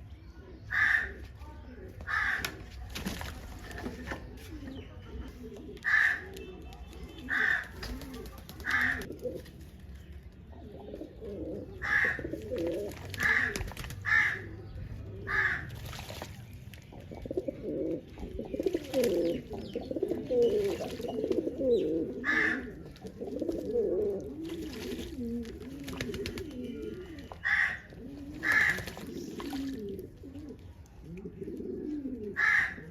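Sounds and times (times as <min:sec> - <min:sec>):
pigeons cooing: 0:07.2 - 0:09.6, 0:10.5 - 0:16.0, 0:16.9 - 0:32.9.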